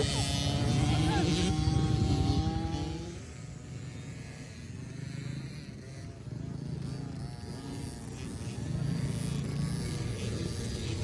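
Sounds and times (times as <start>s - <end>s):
dirt bike engines droning: 0.0s - 3.6s.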